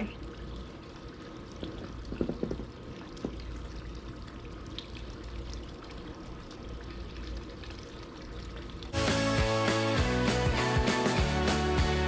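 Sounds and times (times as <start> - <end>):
faint clicks and knocks: 1.6 - 3.5.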